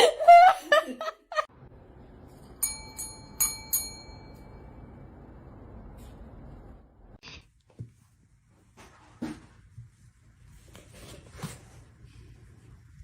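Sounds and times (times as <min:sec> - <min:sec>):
people laughing: 0:00.0 - 0:01.5
light metallic bell-like strikes: 0:02.4 - 0:05.1.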